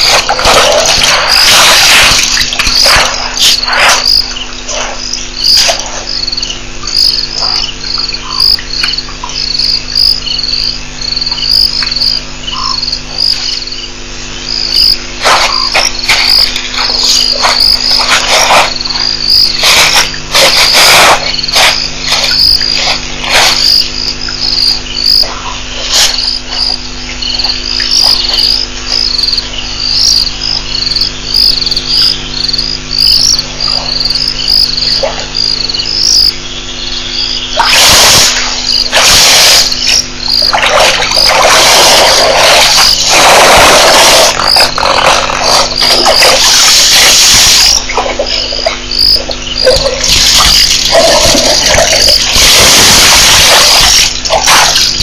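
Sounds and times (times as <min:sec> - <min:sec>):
cricket chirping: 0:00.0 - 0:55.0
electrical hum: 0:00.0 - 0:55.0.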